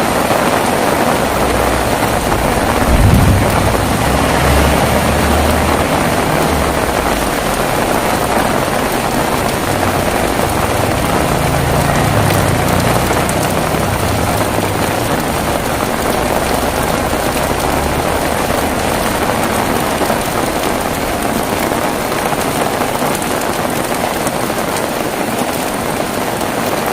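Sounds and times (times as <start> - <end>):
heavy rain falling: 0.0 - 26.9
low rumble: 1.2 - 22.5.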